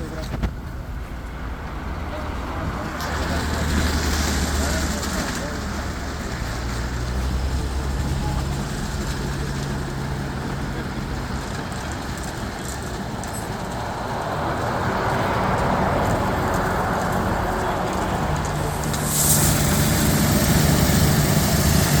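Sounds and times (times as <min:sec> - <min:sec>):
car wash motors humming: 0:00.0 - 0:22.0
rushing sound: 0:13.3 - 0:22.0
short hiss: 0:18.7 - 0:22.0.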